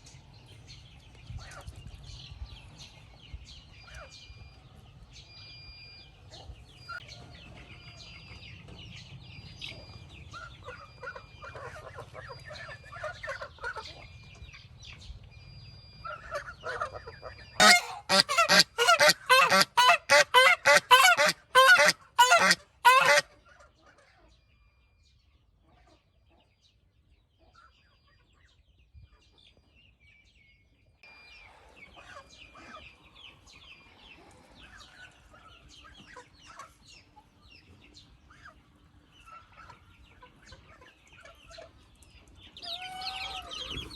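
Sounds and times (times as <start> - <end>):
waterfowl honking: 17.6 - 23.2.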